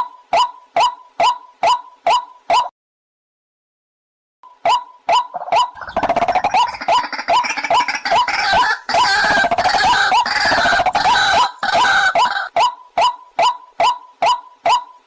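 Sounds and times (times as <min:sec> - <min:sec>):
waterhen calling: 0:04.7 - 0:14.9.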